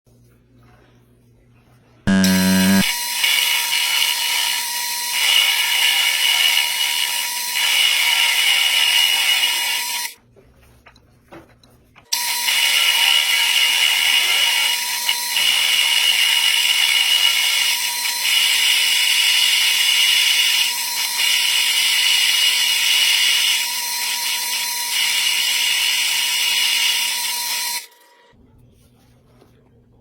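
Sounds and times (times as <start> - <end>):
thin high tone: 2.1 - 3.0.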